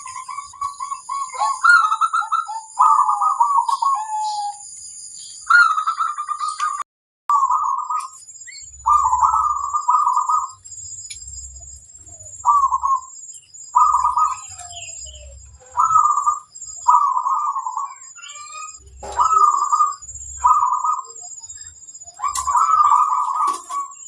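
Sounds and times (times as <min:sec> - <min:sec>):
dove cooing: 0:00.0 - 0:04.6, 0:05.5 - 0:08.2, 0:08.8 - 0:10.6, 0:12.0 - 0:13.1, 0:13.8 - 0:24.0
steady high-pitched tone: 0:07.3 - 0:24.0.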